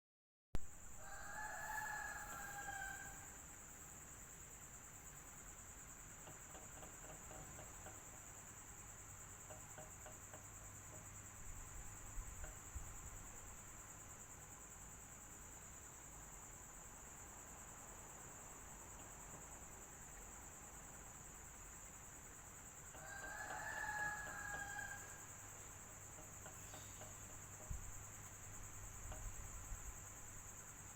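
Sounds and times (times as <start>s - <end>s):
high-pitched hiss: 0.6s - 30.9s
rooster crowing: 0.9s - 3.4s, 22.9s - 25.7s.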